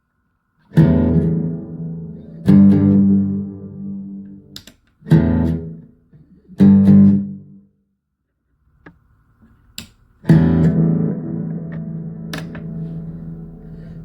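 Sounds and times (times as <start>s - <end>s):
electric guitar chords ringing: 0.7s - 5.8s, 10.3s - 14.0s.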